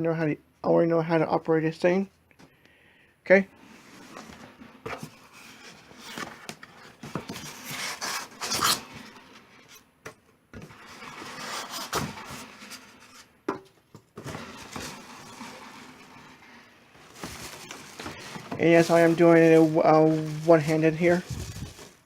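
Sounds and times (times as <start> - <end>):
cardboard box rustling and scraping: 3.7 - 9.8, 10.6 - 13.3, 14.2 - 22.0.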